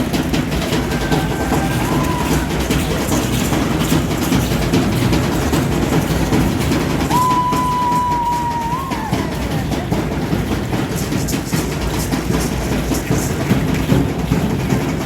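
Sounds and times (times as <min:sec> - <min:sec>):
faint clatter: 0:08.0 - 0:15.0.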